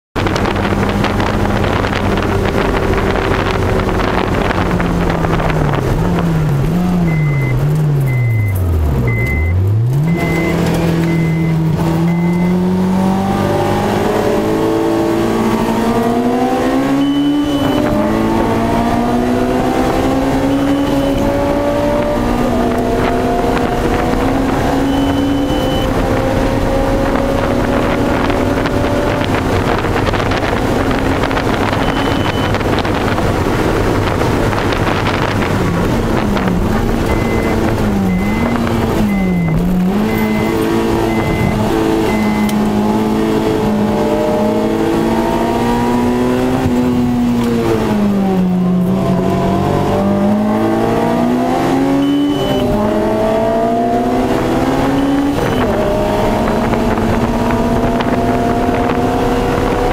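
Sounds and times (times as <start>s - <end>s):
wind and road noise: 0.1s - 59.9s
car engine revving: 0.2s - 59.9s
short electronic beeps: 7.0s - 12.8s, 16.6s - 18.6s, 19.4s - 21.8s, 24.1s - 26.4s, 31.5s - 32.8s, 37.0s - 42.7s, 51.5s - 53.8s, 54.5s - 56.8s.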